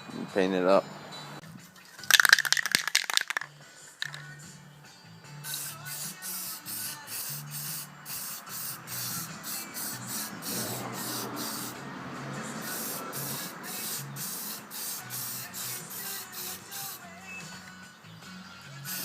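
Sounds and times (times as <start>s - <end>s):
background music: 0.0s - 19.0s
aerosol can spraying in bursts: 5.4s - 11.8s, 12.6s - 17.2s.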